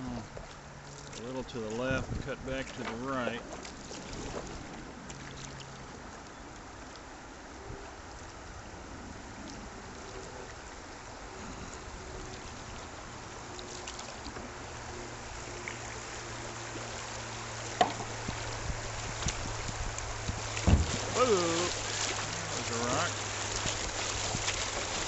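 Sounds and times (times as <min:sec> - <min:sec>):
river water rushing: 0:02.7 - 0:25.0.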